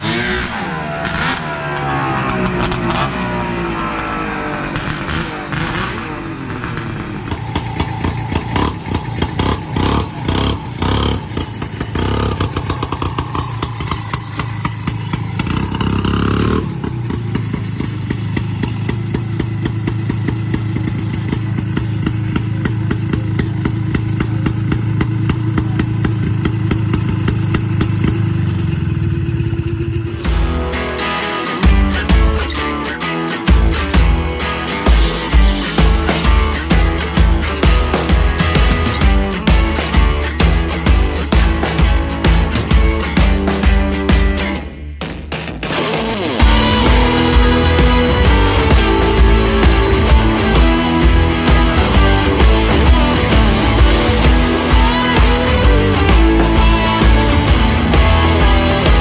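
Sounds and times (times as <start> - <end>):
two-stroke snowmobile engine running: 4.5 - 30.6, 35.4 - 44.3, 46.4 - 59.0.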